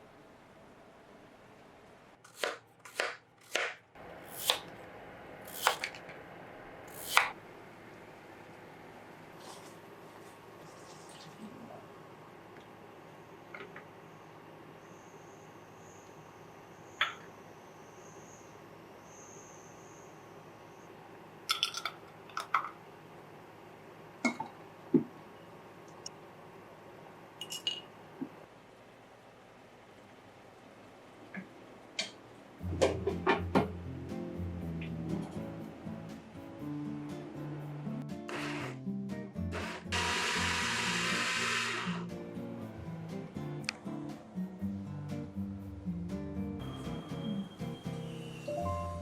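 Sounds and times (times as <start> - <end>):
small household objects clinking: 21.5 - 22.8.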